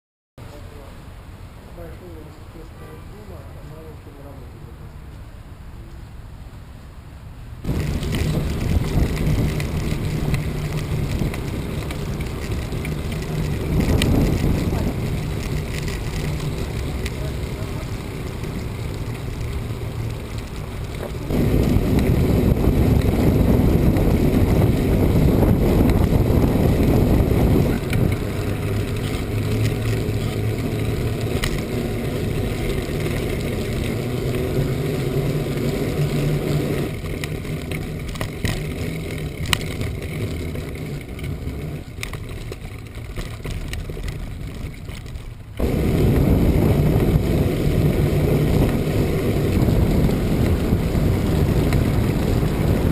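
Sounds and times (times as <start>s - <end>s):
strong wind buffeting microphone: 7.6s - 37.1s, 45.6s - 52.9s.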